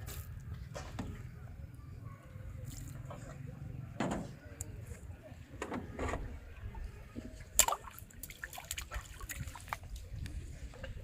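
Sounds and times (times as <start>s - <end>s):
water splashes and drips: 2.5s - 3.2s, 7.4s - 11.0s.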